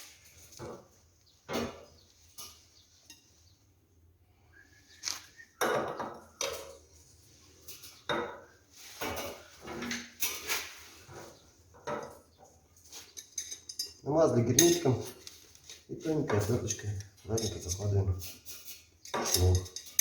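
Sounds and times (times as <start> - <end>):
screwdriver clinking on sheet metal: 12.9 - 15.4, 16.3 - 20.0.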